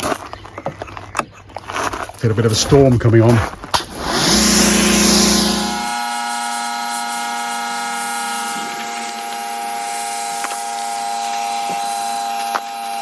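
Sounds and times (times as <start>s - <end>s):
steady whine: 3.8s - 10.6s.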